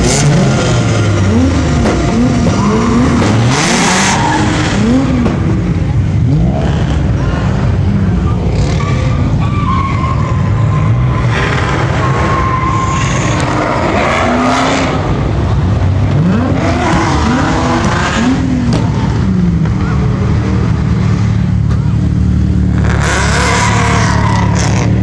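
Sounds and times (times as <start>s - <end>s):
tyres squealing: 0.0s - 5.1s
car engines revving: 0.0s - 25.0s.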